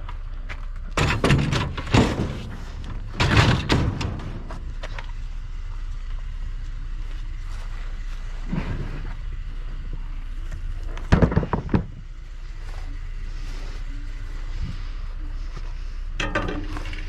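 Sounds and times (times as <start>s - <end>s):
vehicle engine humming: 0.0s - 17.0s
scrap metal clanging: 1.0s - 5.1s, 16.2s - 17.0s.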